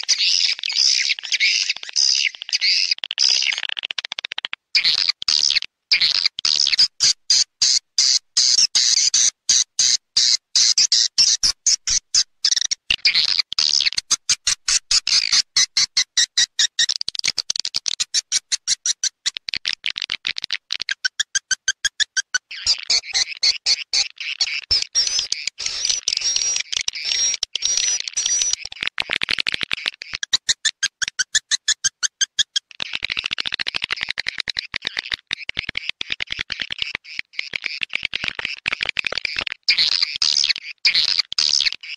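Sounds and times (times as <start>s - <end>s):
swiftlet chattering twitters: 0.0s - 5.5s, 16.6s - 41.9s.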